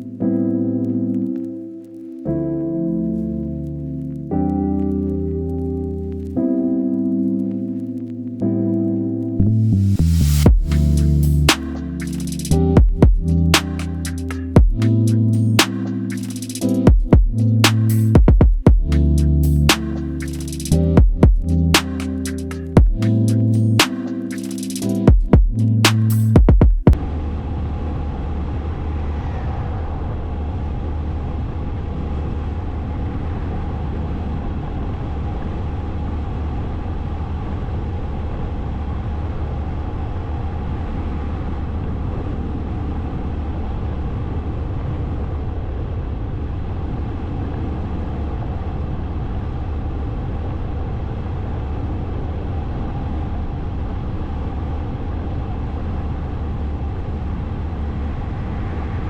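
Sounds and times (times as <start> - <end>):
road noise: 9.4 - 12.7, 55.6 - 59.0.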